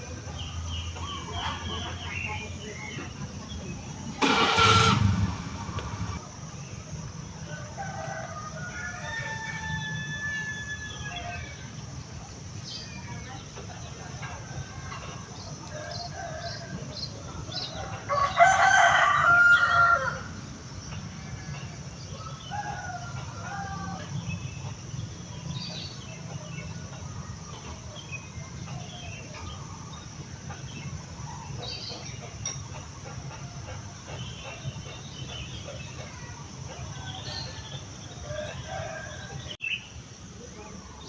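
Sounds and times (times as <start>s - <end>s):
rooster crowing: 7.7s - 11.5s, 18.0s - 20.4s, 22.2s - 24.2s, 38.2s - 39.6s.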